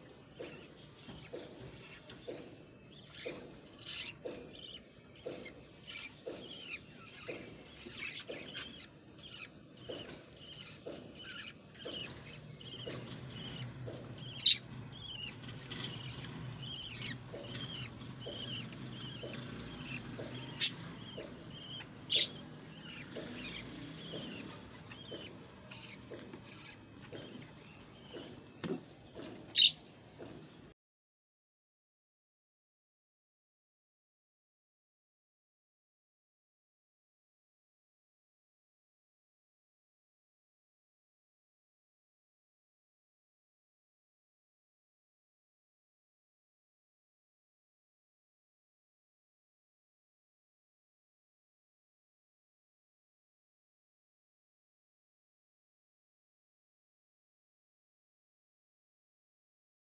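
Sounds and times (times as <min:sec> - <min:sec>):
budgerigar chicks cheeping: 0:00.4 - 0:28.6, 0:29.5 - 0:29.8.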